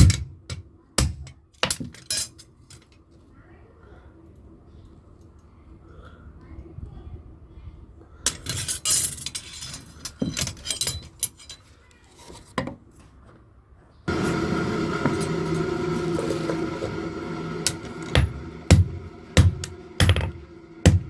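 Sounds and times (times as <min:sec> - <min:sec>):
metal tools clinking and scraping: 0:01.1 - 0:03.0, 0:08.3 - 0:12.6.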